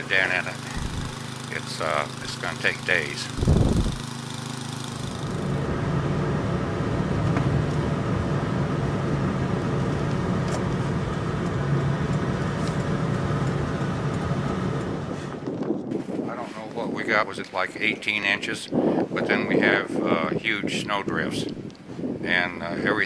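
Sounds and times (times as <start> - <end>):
engine low hum: 0.0 - 15.6.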